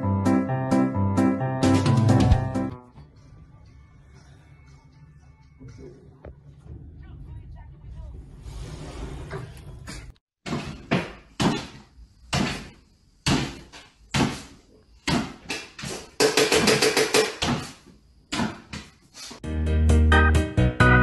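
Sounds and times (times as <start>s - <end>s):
sharp knocks and bangs: 10.4s - 19.0s.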